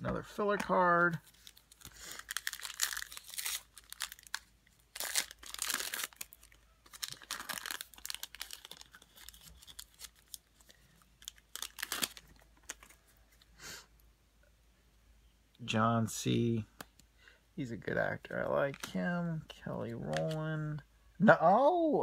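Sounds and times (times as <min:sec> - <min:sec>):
cards rustling and sliding: 0:20.0 - 0:20.4.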